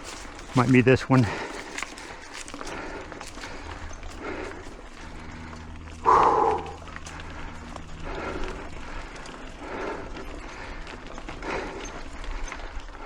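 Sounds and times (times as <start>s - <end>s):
person breathing hard: 1.2s - 9.0s.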